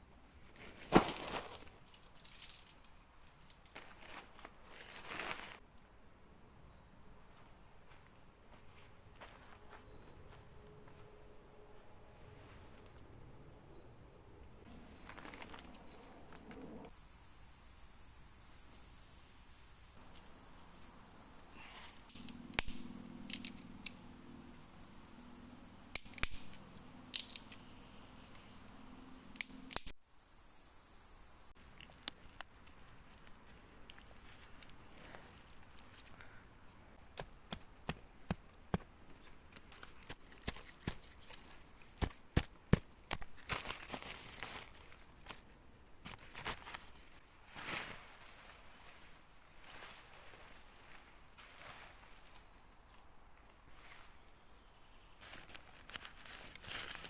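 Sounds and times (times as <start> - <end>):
high-pitched insect chorus: 0.9 - 57.0
sharp clicks and snaps: 22.1 - 24.0, 29.3 - 29.9.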